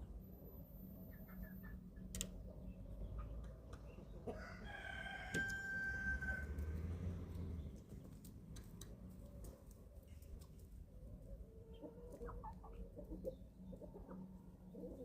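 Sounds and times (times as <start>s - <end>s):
young chicken crowing: 4.3s - 6.7s.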